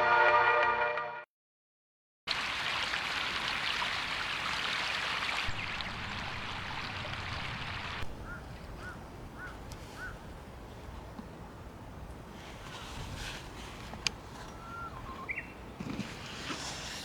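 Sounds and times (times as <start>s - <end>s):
bird calling: 8.1s - 10.2s, 14.4s - 15.7s.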